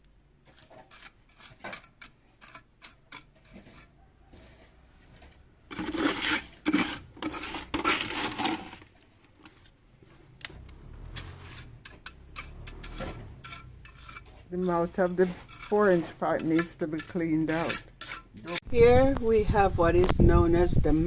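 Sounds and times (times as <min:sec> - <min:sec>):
hand tools clicking and knocking: 0:00.5 - 0:04.0, 0:10.4 - 0:18.6
loud scraping and rasping: 0:00.5 - 0:04.6, 0:05.7 - 0:09.7, 0:10.5 - 0:18.7.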